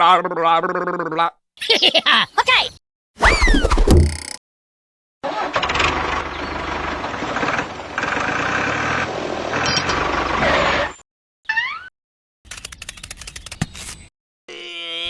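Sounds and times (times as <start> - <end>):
vehicle engine running: 5.4 - 11.0.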